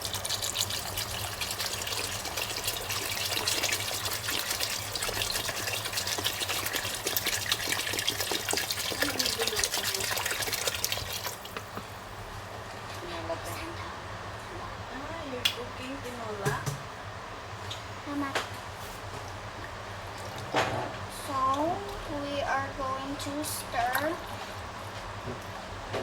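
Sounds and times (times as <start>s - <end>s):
water pouring into a pot: 0.0s - 11.7s.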